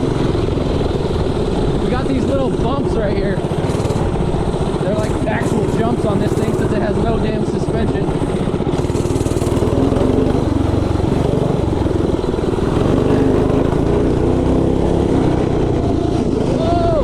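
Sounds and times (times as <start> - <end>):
small engine running hard: 0.0 - 17.0.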